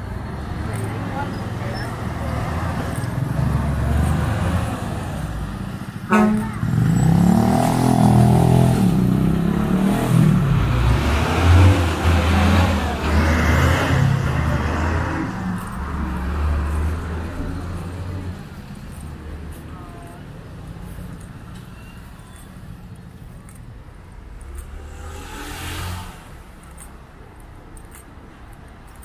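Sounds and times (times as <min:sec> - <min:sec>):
short horn toot: 0:06.1 - 0:06.8.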